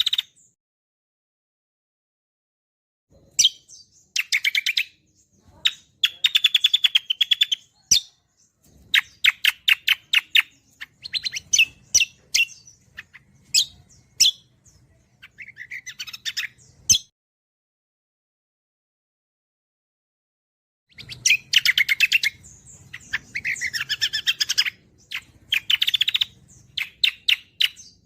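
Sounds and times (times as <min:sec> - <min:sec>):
songbirds trilling and chirping: 0:00.0 - 0:00.6, 0:03.1 - 0:17.1, 0:20.9 - 0:28.0.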